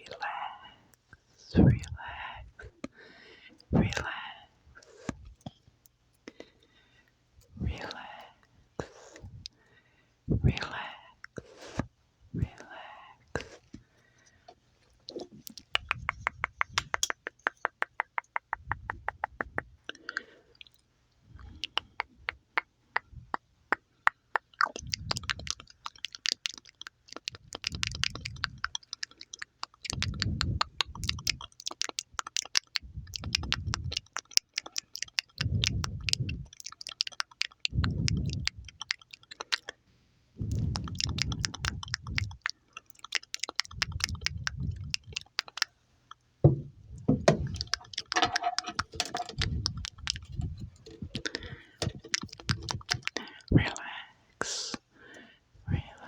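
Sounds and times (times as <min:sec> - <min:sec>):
tongue and lip clicks: 0:01.5 - 0:02.0, 0:07.4 - 0:09.6, 0:14.9 - 0:39.8, 0:40.4 - 0:46.3, 0:46.9 - 0:54.9.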